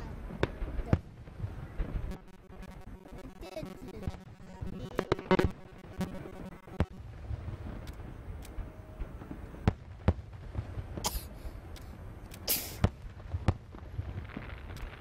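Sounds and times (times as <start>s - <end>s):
fireworks bangs: 0.0s - 15.0s
hissing crackling firework bursts: 9.2s - 15.0s.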